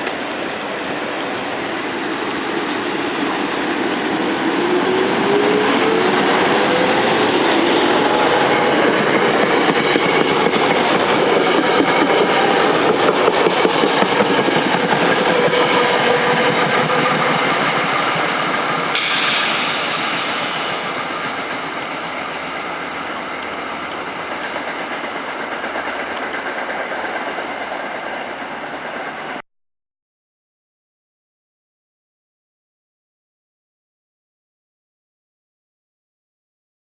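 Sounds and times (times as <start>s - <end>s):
train wheels rumbling on rails: 0.0s - 29.4s.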